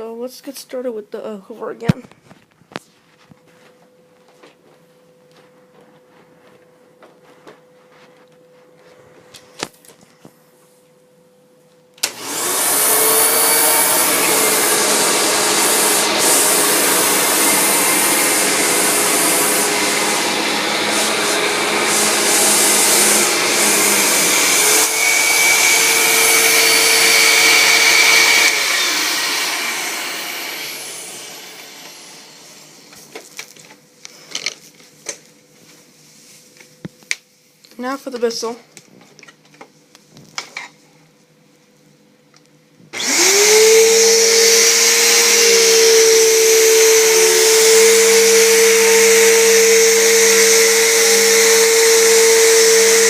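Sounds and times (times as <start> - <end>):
vacuum cleaner running: 3.0 - 10.0, 12.0 - 34.6, 42.9 - 53.0.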